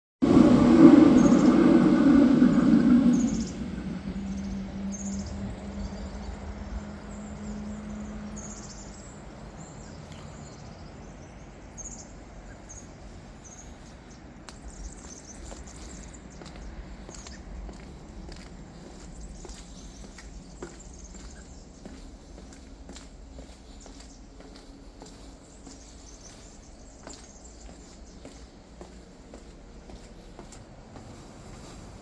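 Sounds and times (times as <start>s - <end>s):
loud rushing noise: 0.2s - 7.0s
faint hum: 0.2s - 32.0s
small songbirds chirping: 1.2s - 32.0s.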